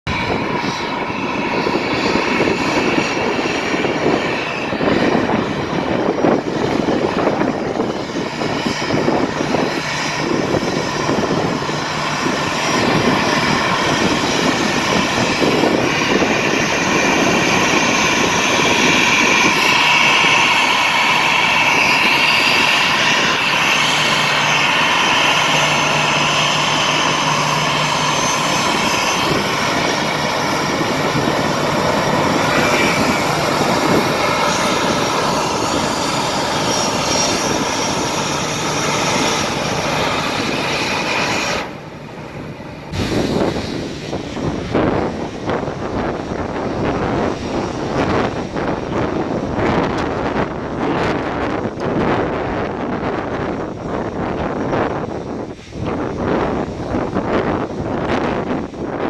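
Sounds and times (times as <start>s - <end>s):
jet engines running loud: 0.0s - 59.0s.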